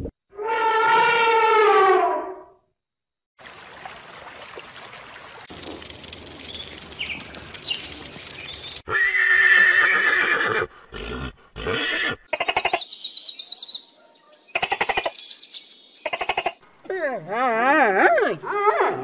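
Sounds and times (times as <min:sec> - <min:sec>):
pulsed rattling trills: 0:05.5 - 0:08.8
high chirps: 0:05.5 - 0:08.9
horse whinnying: 0:08.9 - 0:12.3.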